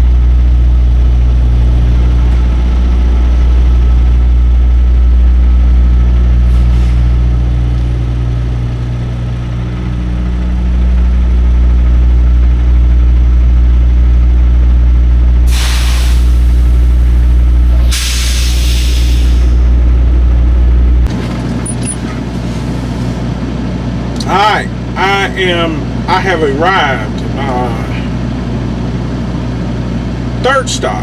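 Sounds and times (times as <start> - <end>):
diesel truck engine droning: 0.0 - 31.0
air brake hisses: 15.5 - 16.8, 17.8 - 19.6.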